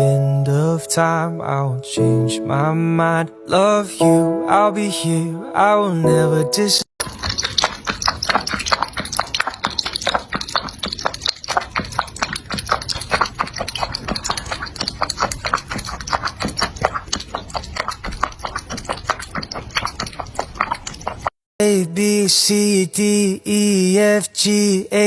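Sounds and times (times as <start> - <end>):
rapid uneven clicking: 7.0 - 21.3.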